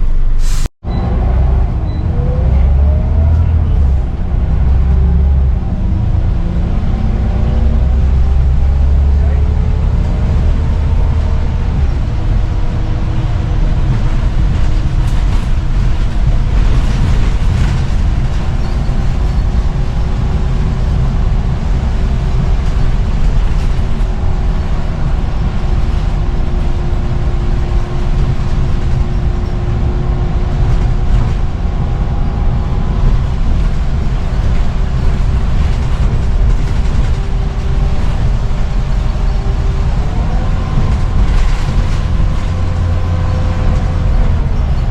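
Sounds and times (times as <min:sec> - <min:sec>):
bus engine and road rumble: 0:00.0 - 0:44.9.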